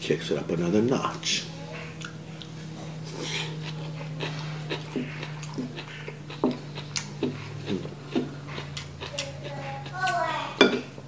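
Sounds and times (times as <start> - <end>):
steady low hum: 0.0 - 11.0
chewing and lip-smacking: 1.7 - 10.9.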